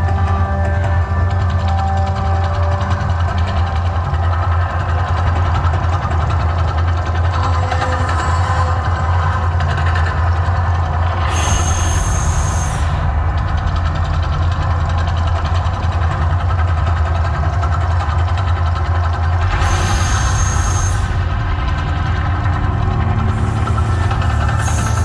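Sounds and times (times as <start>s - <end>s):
deep rumble: 0.0s - 25.0s
hissing burst: 11.1s - 16.4s, 19.4s - 25.0s.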